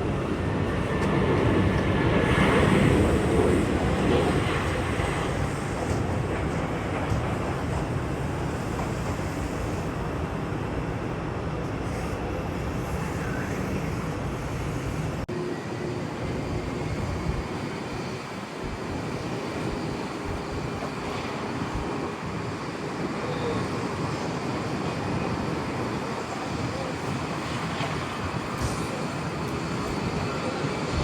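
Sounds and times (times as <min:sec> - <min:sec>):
jet engines running: 0:00.0 - 0:31.0.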